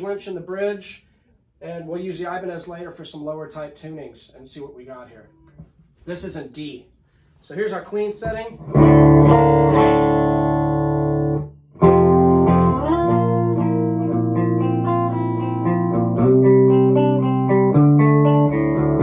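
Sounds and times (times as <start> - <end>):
clean electric guitar chords: 8.6 - 19.0.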